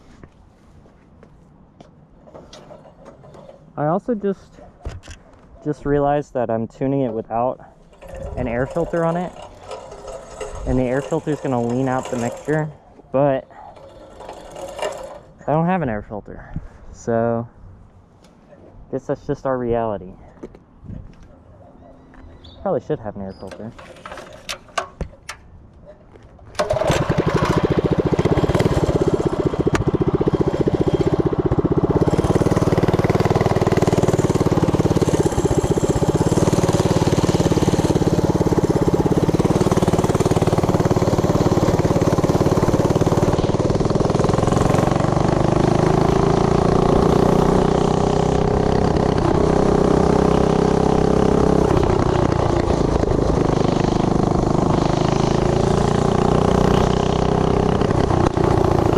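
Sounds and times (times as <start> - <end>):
small engine starting and running: 2.3 - 3.8, 7.8 - 12.8, 13.4 - 15.5, 23.4 - 25.4, 26.5 - 58.9.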